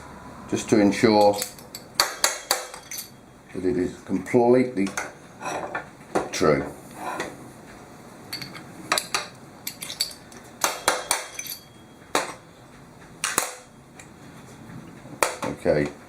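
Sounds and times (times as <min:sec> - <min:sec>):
steel parts clinking: 0:01.1 - 0:03.2, 0:08.3 - 0:12.1.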